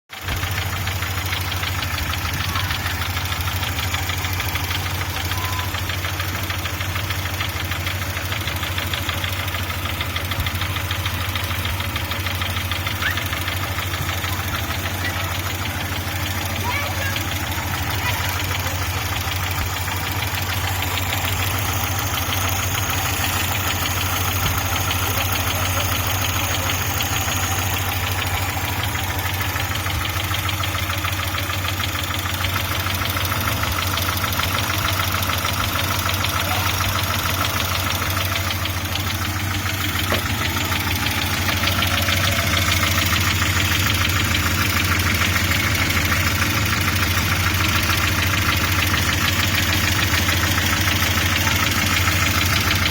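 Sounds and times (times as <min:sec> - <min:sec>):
car engine idling with knock: 0:00.1 - 0:52.9.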